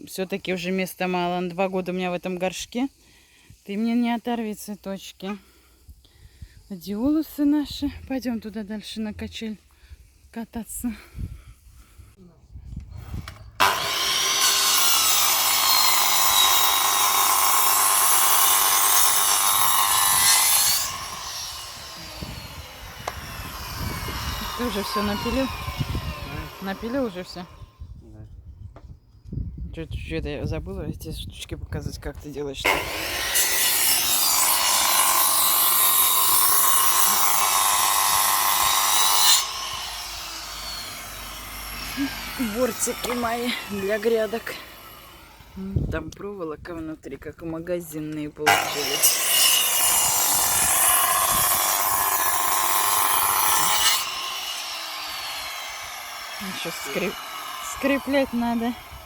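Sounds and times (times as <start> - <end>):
power saw cutting wood: 13.3 - 27.7, 32.6 - 45.7, 48.4 - 59.0.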